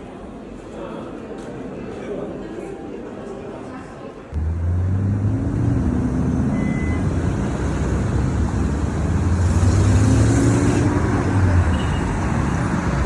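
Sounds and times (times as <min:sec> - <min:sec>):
road noise: 0:04.4 - 0:13.0.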